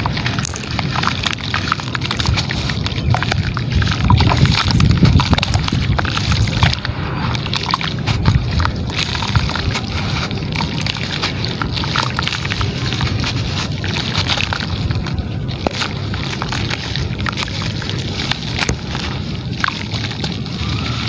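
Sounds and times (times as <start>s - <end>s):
wet material crumbling in water: 0.0s - 21.0s.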